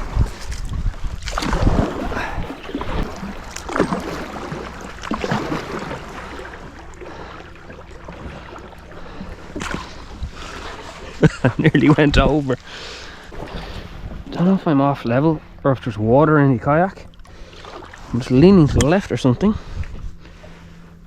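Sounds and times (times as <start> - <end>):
paddle strokes splashing in water: 0.0 - 14.4, 17.2 - 18.3.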